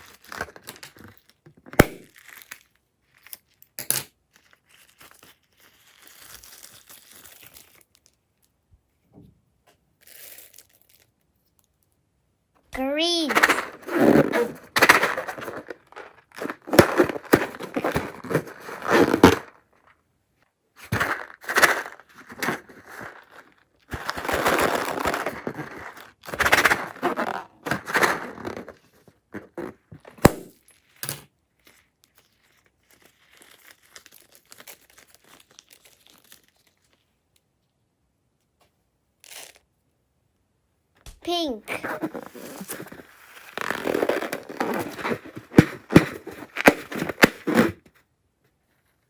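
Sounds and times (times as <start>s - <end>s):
crunchy slime crackling: 31.8s - 37.0s.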